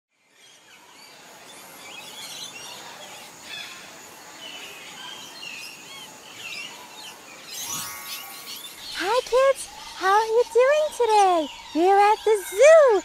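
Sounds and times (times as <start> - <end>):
steady background hiss: 0.2 - 13.0
birds chirping and whistling: 4.4 - 13.0.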